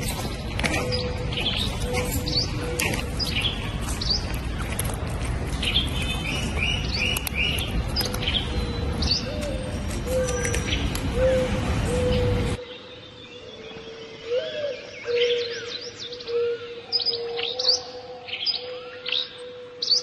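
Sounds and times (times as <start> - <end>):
small birds chirping: 0.0 - 14.2.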